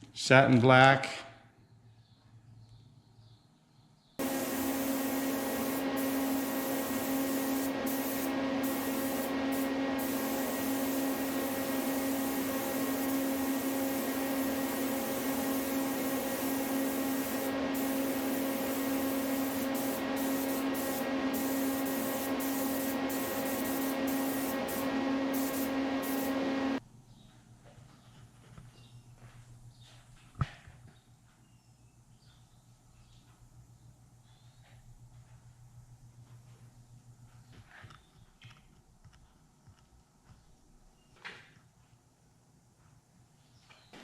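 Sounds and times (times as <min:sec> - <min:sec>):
motor hum: 0:04.2 - 0:26.8
paint spray hissing: 0:04.2 - 0:26.8.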